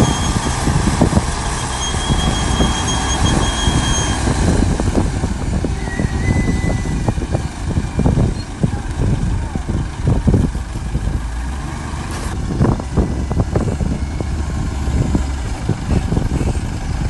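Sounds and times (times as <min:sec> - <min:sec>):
high metallic squeal: 0:00.0 - 0:00.6, 0:01.5 - 0:04.4, 0:05.8 - 0:07.1
diesel engine running: 0:00.0 - 0:17.0
lower metallic squeal: 0:01.5 - 0:04.4, 0:05.8 - 0:07.1.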